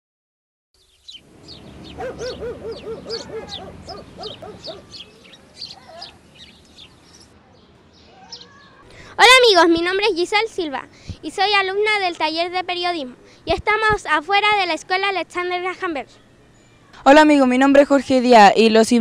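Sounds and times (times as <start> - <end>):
quick repeated lower bird calls: 0.8 - 7.3
birds chirping: 0.8 - 17.0.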